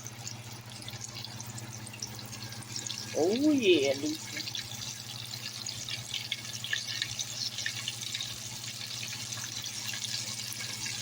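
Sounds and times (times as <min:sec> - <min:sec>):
grease sizzling in a frying pan: 0:00.0 - 0:11.0.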